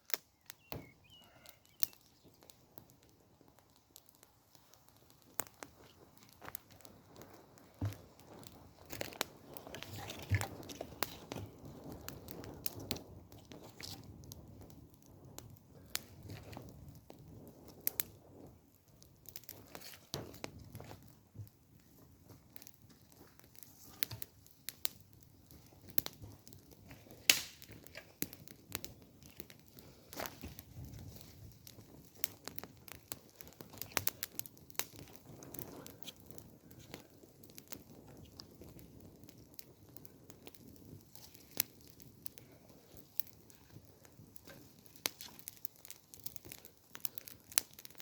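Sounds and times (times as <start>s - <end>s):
sharp snaps of fire: 0.0s - 48.0s
wood fire crackling: 0.0s - 48.0s
rustle of twigs being handled: 4.0s - 14.2s, 19.3s - 21.2s, 21.8s - 37.2s, 41.0s - 48.0s.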